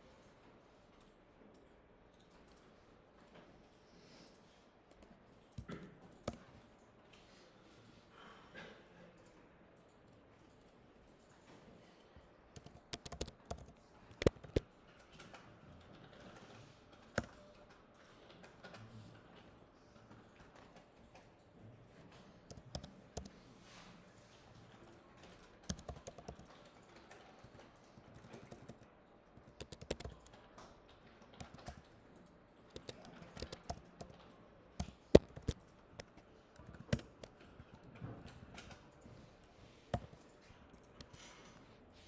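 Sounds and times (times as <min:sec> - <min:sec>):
typing on a keyboard: 0:00.9 - 0:06.8, 0:12.5 - 0:23.4, 0:24.5 - 0:39.3, 0:39.9 - 0:41.6.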